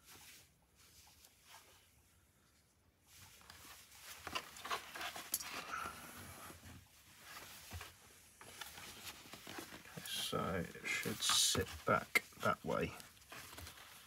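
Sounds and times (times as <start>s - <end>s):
fabric lining rustling: 3.1s - 14.0s.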